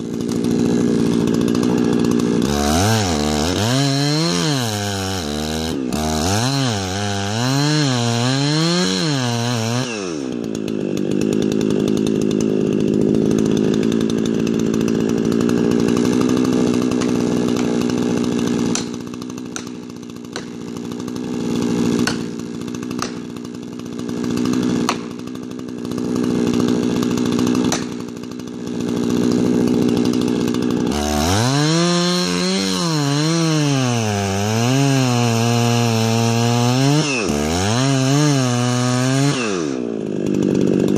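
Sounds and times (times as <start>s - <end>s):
chainsaw cutting wood: 0.0s - 40.9s
wood snapping: 0.2s - 10.1s, 13.6s - 21.0s, 21.6s - 26.0s, 26.9s - 28.2s, 28.8s - 40.9s.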